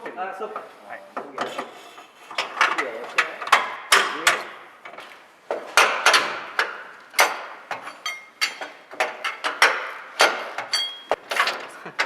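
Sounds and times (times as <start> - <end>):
ringing metal knocks and clanks: 5.8 - 11.6.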